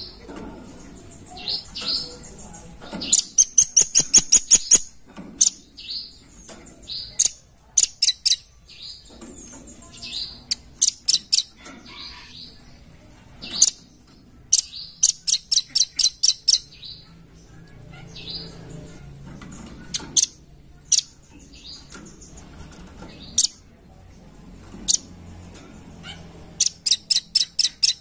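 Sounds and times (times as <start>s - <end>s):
nuthatch sharp high chirps: 3.1s - 6.1s, 26.6s - 28.0s.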